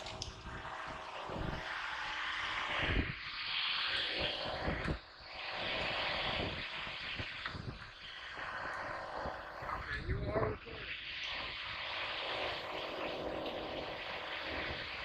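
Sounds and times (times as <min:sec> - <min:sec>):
drone motors and propellers rushing: 0:00.0 - 0:15.0.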